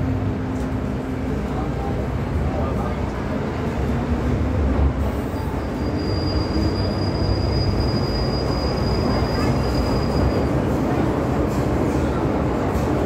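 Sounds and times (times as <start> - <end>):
metro train rumble: 0.0 - 13.0
high wheel squeal: 5.2 - 10.7.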